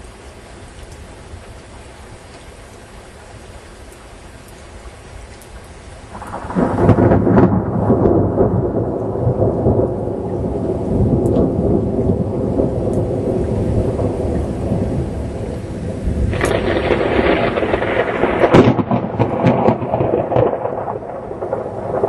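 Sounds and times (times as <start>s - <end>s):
rain falling: 0.0s - 22.0s
thunder clap and rumble: 6.1s - 22.0s.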